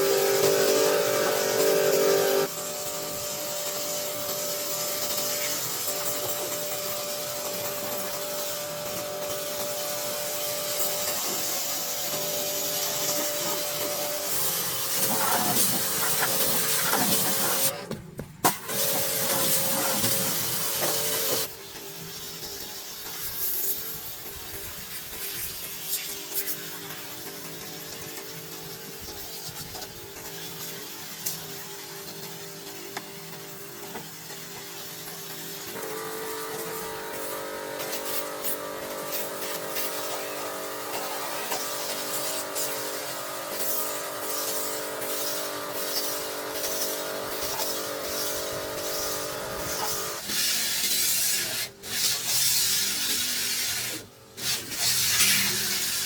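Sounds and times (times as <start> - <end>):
power tool whine: 0.0 - 17.8, 35.0 - 56.0.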